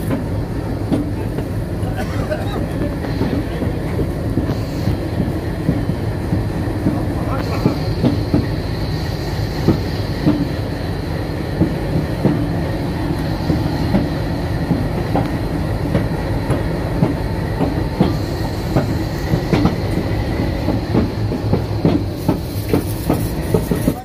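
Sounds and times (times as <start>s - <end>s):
train wheels rumbling on rail: 0.0s - 24.0s
irregular knocks and clicks: 20.6s - 24.0s.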